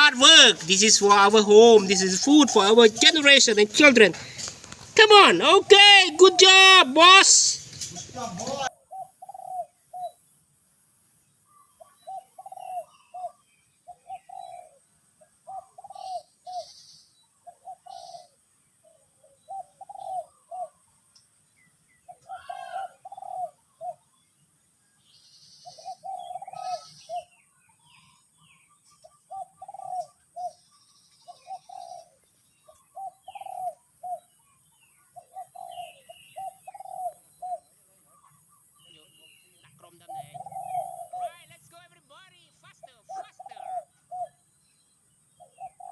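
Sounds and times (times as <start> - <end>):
dove cooing: 0.0 - 10.2, 11.8 - 16.8, 17.4 - 20.8, 22.1 - 24.0, 25.6 - 27.4, 29.1 - 30.7, 31.3 - 32.2, 32.8 - 34.4, 35.2 - 38.4, 40.0 - 41.6, 42.9 - 44.4, 45.4 - 45.9
small birds chirping: 0.0 - 45.9.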